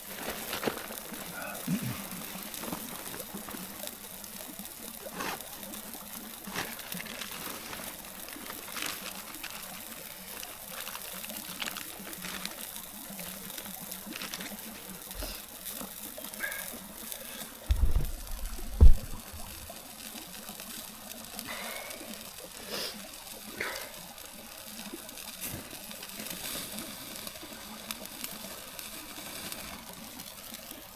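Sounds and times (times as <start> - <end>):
stream flowing: 0.0 - 21.2
small clicks and pops: 0.0 - 22.5
low thump: 17.7 - 19.7.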